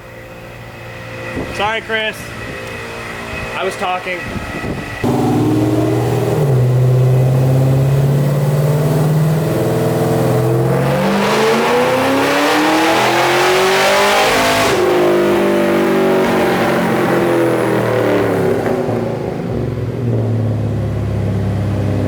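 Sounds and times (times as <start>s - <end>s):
car engine revving: 4.6s - 22.0s.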